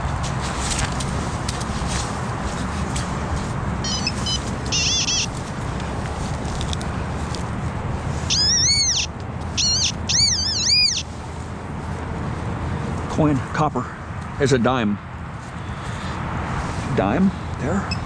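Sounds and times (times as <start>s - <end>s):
metal detector warbling tones: 3.8s - 5.4s, 8.3s - 11.1s.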